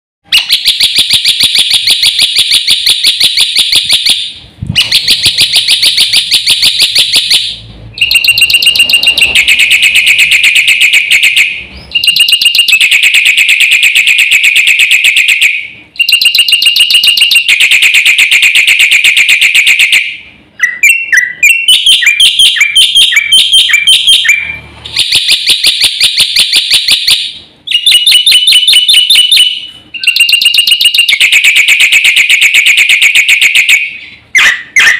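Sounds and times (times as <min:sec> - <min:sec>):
bird repeated falling notes: 0:00.3 - 0:20.0, 0:20.6 - 0:34.9
bird singing rapid trills: 0:04.8 - 0:12.6, 0:20.6 - 0:31.4.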